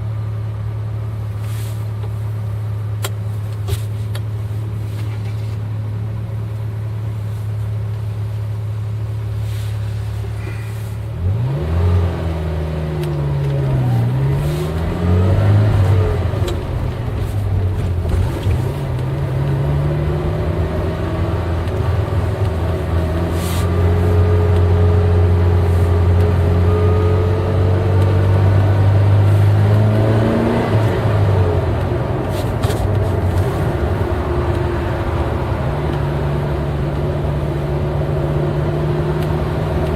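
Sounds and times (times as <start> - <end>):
car engine revving: 10.2 - 39.9.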